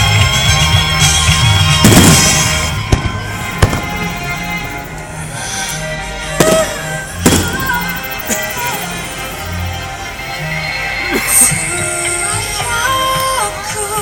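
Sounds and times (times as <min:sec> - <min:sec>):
music: 0:00.0 - 0:14.0
fireworks bangs: 0:01.6 - 0:09.9
sharp fireworks cracks: 0:01.6 - 0:09.9.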